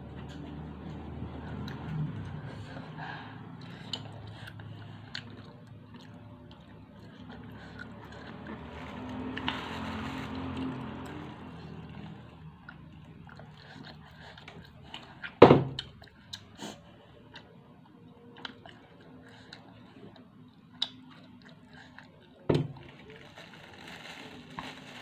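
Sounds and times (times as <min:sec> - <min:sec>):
chewing crunchy snack: 0:03.5 - 0:23.4.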